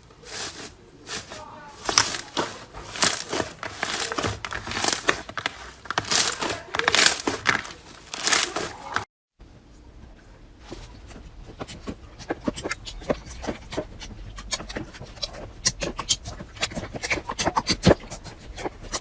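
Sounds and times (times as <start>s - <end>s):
brittle material crunching: 0.0s - 9.1s
fine crackles: 0.0s - 9.1s.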